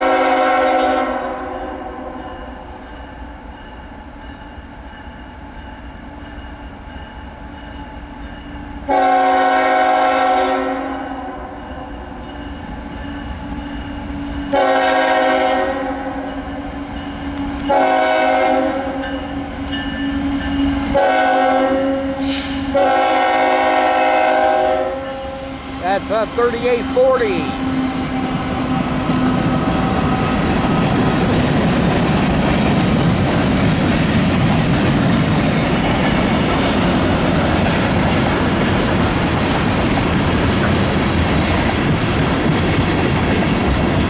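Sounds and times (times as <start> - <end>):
locomotive air horn blasts: 0.0 - 2.1, 8.9 - 11.5, 14.5 - 16.3, 17.7 - 19.0, 20.9 - 28.2
train rumble: 0.0 - 44.0.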